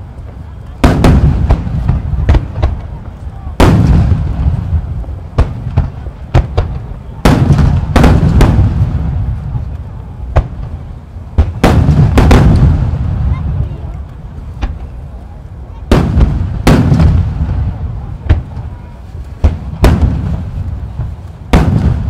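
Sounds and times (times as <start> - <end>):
firework shells booming overhead: 0.0 - 22.0.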